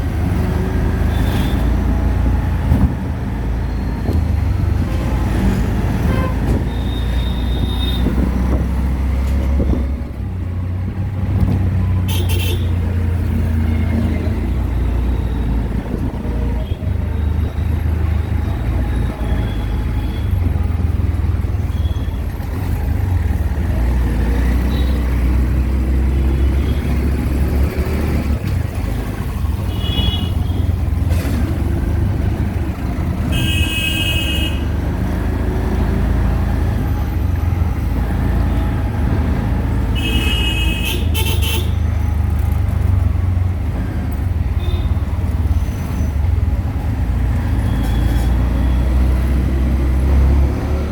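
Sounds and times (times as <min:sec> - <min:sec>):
engine and road rumble: 0:00.0 - 0:50.9
vehicle horns honking: 0:06.0 - 0:08.2, 0:12.1 - 0:12.8, 0:33.3 - 0:34.8, 0:39.9 - 0:41.8.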